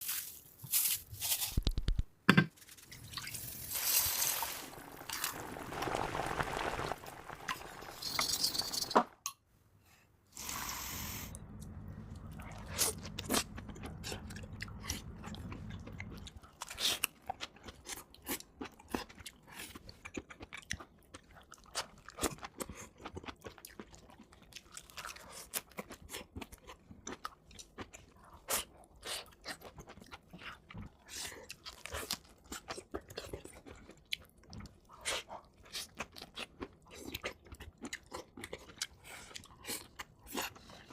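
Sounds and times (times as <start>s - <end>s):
crunchy food being chewed: 12.2s - 40.9s.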